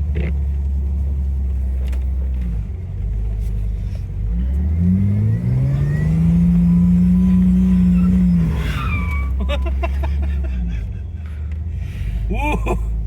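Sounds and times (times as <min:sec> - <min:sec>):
engine revving: 0:04.2 - 0:10.8.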